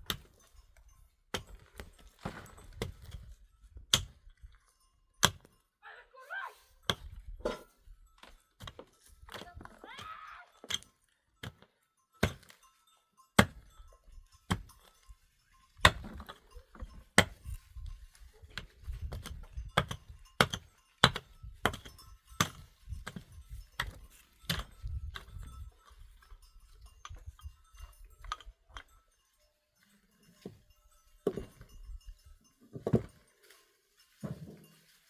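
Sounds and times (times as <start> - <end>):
hand tool striking blows: 5.2 - 5.6, 6.9 - 12.6, 13.4 - 13.7, 15.8 - 17.6, 18.5 - 25.5.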